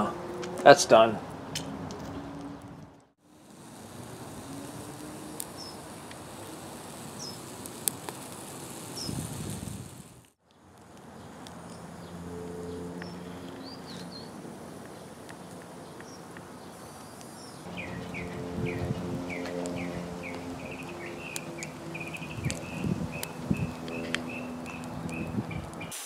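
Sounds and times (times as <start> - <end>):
bird chirps: 11.7 - 15.1, 15.8 - 26.0.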